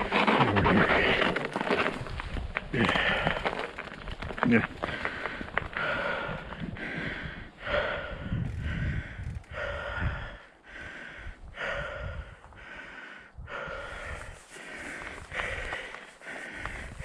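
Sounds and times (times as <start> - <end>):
person breathing hard: 4.8 - 17.0.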